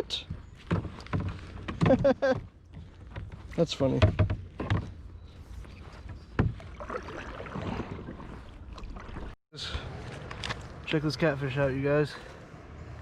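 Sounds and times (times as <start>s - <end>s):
gear knocking against kayak: 0.3s - 5.0s.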